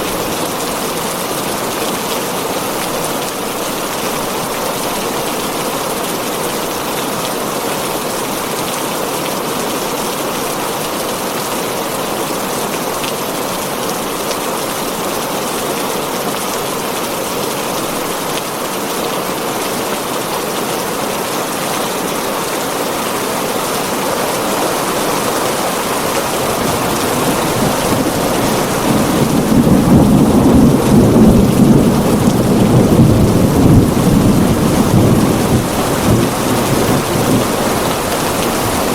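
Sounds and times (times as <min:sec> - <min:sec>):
heavy rain on a tin roof: 0:00.0 - 0:38.9
low thunder rumble: 0:23.8 - 0:38.9.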